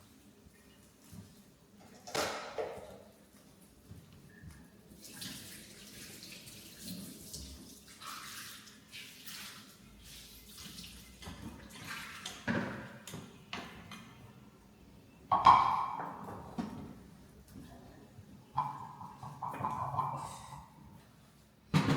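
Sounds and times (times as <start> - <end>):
water splashing in a basin: 5.0 - 12.5.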